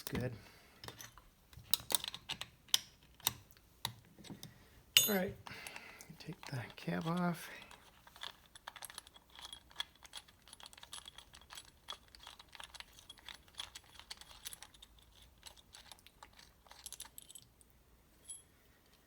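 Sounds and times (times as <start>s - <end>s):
metal engine parts clinking: 5.0s - 5.4s, 6.3s - 17.5s.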